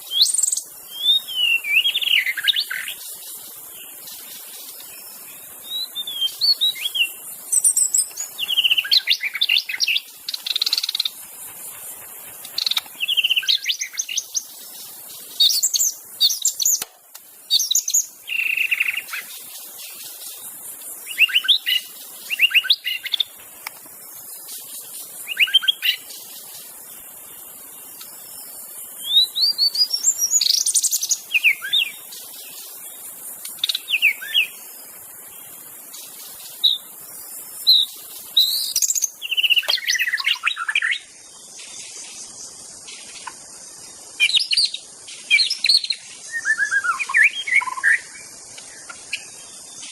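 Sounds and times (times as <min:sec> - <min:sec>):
faint high hiss: 0:00.0 - 0:49.9
bird singing whistles: 0:00.1 - 0:03.0, 0:05.6 - 0:11.1, 0:12.6 - 0:14.5, 0:21.1 - 0:23.2, 0:25.2 - 0:26.0, 0:29.0 - 0:32.0, 0:33.6 - 0:34.6, 0:37.6 - 0:41.1, 0:44.2 - 0:48.2.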